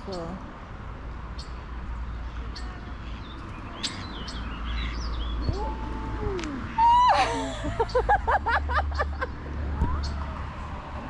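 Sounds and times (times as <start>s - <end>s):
songbird chirping: 1.4s - 6.7s.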